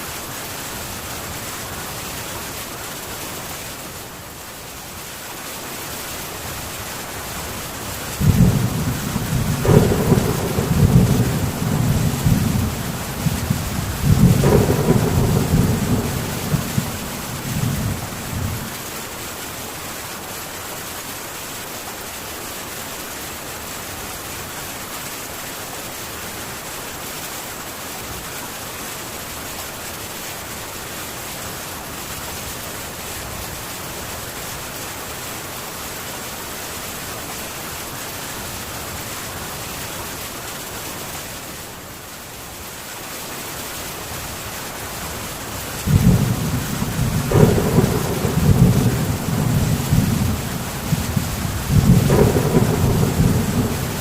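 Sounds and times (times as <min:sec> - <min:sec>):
heavy rain on a tin roof: 0:00.0 - 0:54.0
thunder rumble: 0:08.2 - 0:18.8, 0:45.8 - 0:54.0.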